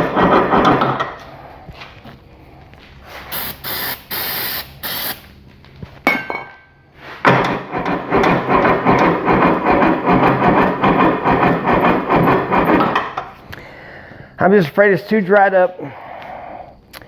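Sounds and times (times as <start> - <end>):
aerosol spray hisses: 3.3 - 5.2
engine starter cranking: 7.3 - 13.4.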